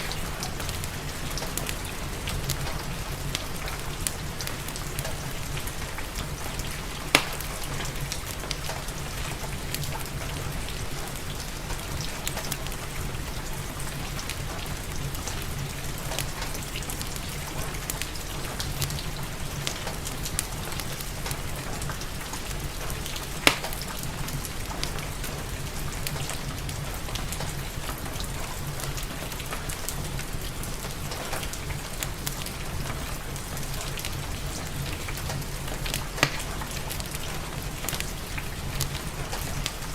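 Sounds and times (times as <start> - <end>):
fireplace crackling: 0.0 - 39.9
steady rain: 0.0 - 39.9
sharp pops from fire: 7.1 - 8.8, 23.1 - 24.1, 35.8 - 38.1.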